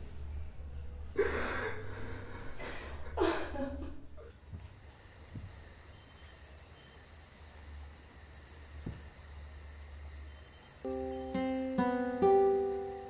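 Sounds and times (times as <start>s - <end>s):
soft knocks on a table: 8.8s - 9.1s
faint high pulsing chirp: 10.3s - 13.0s.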